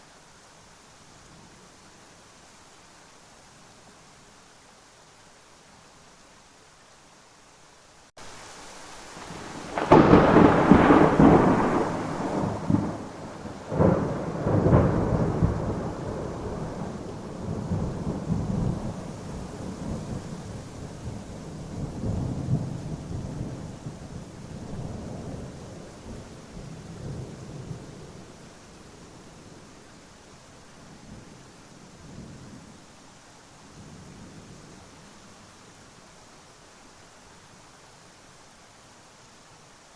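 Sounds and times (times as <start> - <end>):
steady rain: 0.0 - 39.9
thunder clap and rumble: 9.3 - 20.2.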